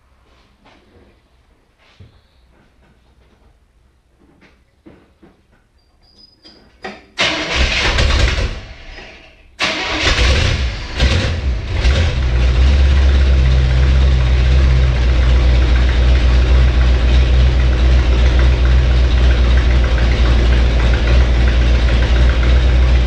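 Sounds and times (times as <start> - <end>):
car engine starting and idling: 7.2 - 23.0
engine revving: 9.6 - 23.0.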